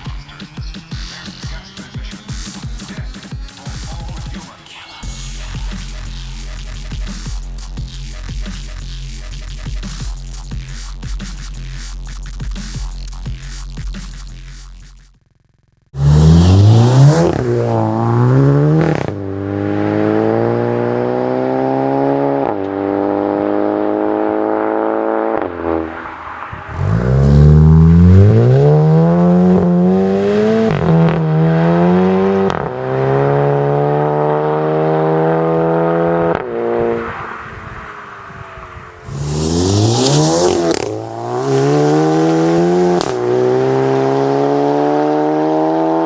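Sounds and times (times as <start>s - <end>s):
car engine starting and revving: 16.0s - 46.0s.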